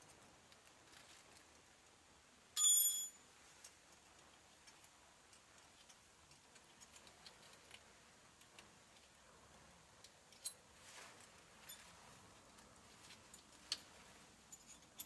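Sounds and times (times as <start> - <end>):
metallic clink: 2.6 - 3.2.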